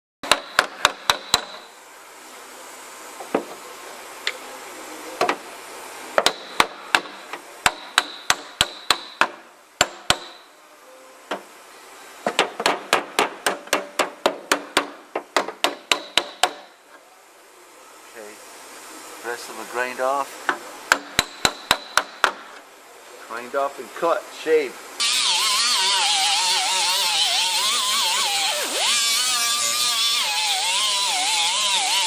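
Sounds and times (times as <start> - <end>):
hammer striking metal: 0.2 - 1.6, 6.2 - 10.5, 20.9 - 22.5.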